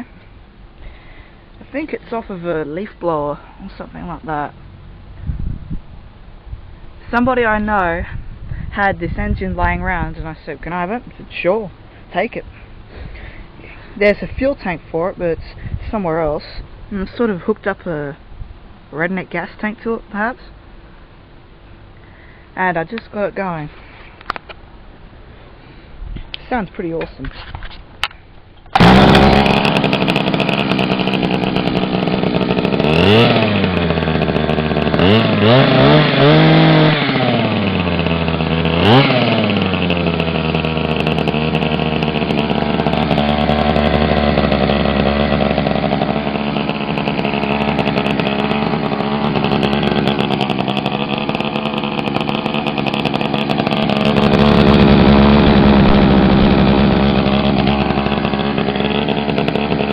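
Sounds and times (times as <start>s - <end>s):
small two-stroke engine revving: 28.6s - 59.9s.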